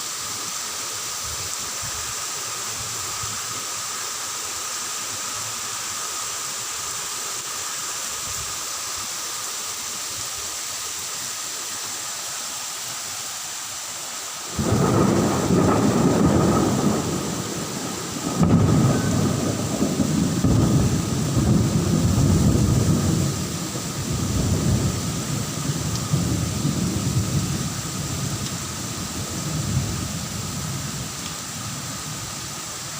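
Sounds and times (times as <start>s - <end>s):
steady rain hiss: 0.0s - 32.9s
rolling thunder rumble: 14.5s - 31.2s.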